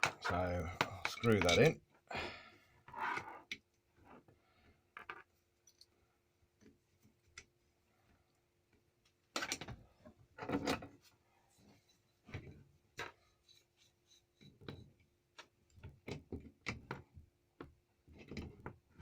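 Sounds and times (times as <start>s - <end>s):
light clicks of metal parts: 0.2s - 1.8s.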